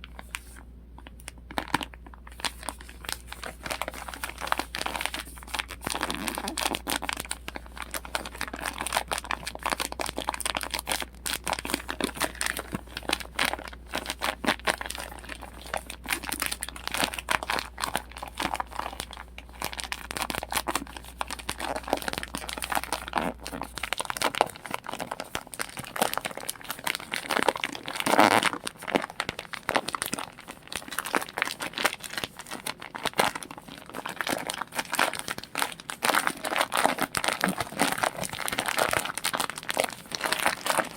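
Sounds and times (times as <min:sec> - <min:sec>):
faint low hum: 0:00.0 - 0:40.9
plastic bags crinkling: 0:00.0 - 0:40.9.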